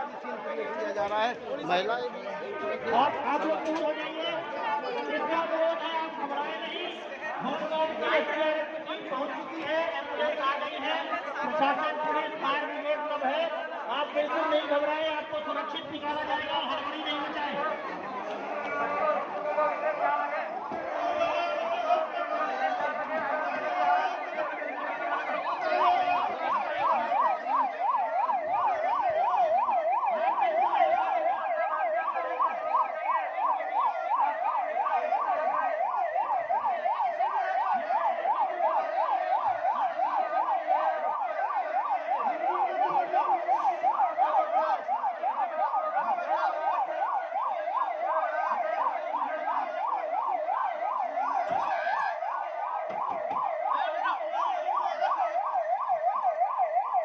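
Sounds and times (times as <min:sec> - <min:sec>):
emergency vehicle siren: 0:00.0 - 0:57.0.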